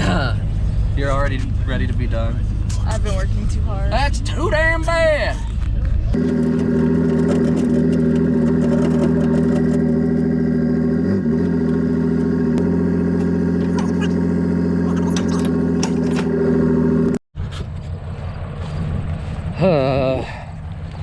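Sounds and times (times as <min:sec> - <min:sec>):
vehicle engine droning: 0:05.5 - 0:21.0.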